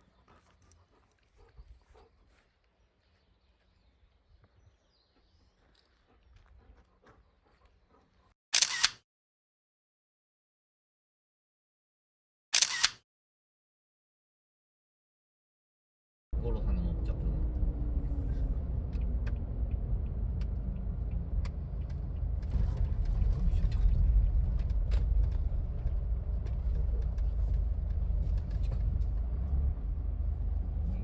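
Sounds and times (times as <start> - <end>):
car engine and road rumble: 16.4 - 31.0.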